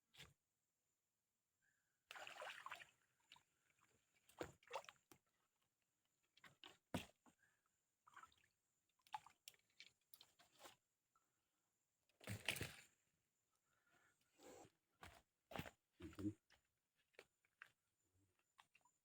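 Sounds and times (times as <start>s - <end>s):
splashing in shallow water: 2.1s - 5.1s.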